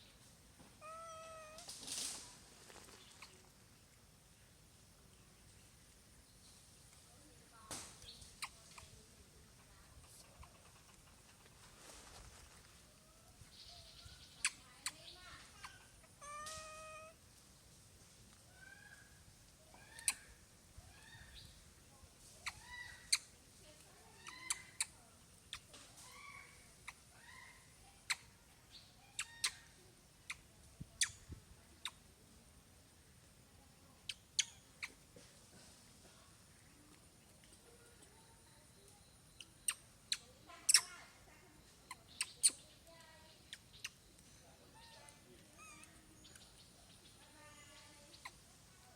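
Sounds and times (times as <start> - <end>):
baby monkey squeaking: 13.7 - 17.2, 19.7 - 20.4, 22.4 - 23.3, 24.2 - 28.3, 29.1 - 32.0, 34.0 - 35.0, 39.3 - 42.8, 43.4 - 44.1, 44.7 - 46.4, 48.1 - 48.4.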